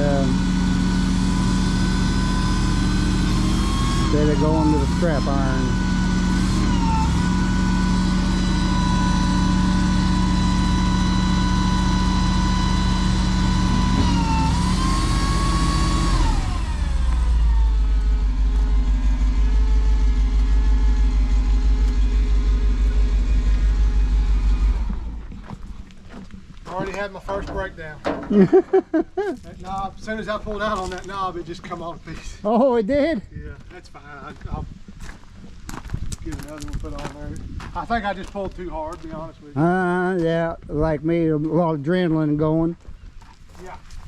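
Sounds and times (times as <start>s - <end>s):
truck engine whining: 0.0s - 32.0s.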